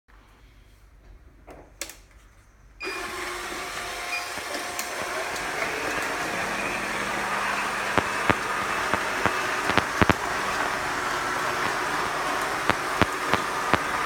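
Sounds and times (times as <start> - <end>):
robot vacuum whirring: 2.8 - 14.0.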